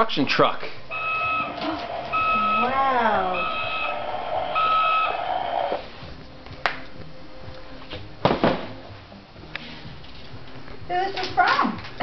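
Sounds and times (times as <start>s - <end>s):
toy truck beeping tone: 0.9s - 5.7s.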